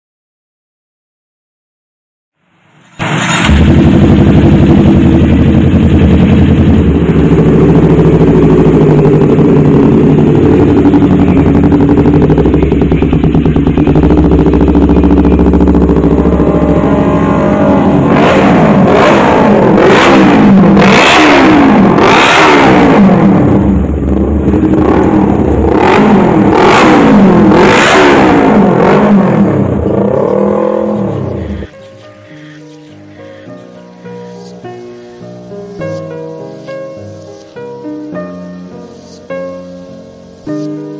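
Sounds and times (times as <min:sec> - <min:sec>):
motorcycle engine revving: 0:03.0 - 0:31.7.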